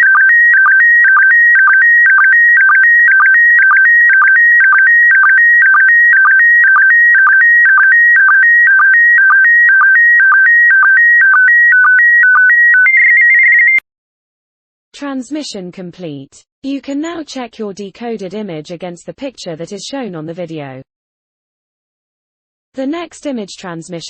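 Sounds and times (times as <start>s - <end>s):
warbling signal tones: 0.0s - 13.8s.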